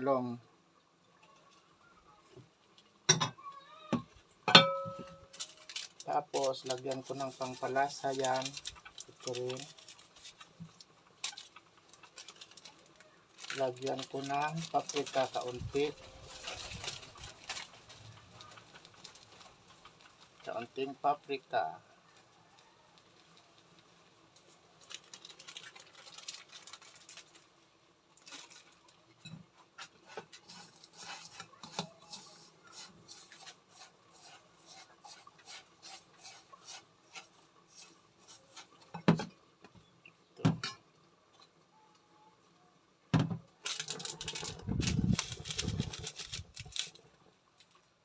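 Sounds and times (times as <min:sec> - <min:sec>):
dishes and utensils clinking: 0:04.5 - 0:05.5.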